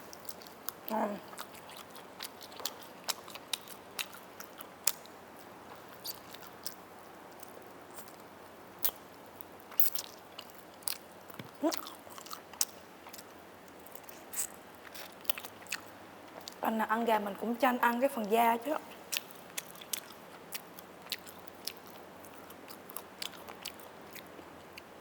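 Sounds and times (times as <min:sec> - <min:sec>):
chewing and biting chicken: 0:00.0 - 0:16.6, 0:19.0 - 0:25.0.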